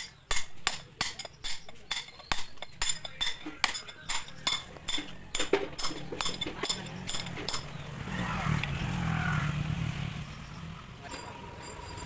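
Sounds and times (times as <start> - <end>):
sharp metallic clinks: 0.0 - 7.8, 11.0 - 12.0.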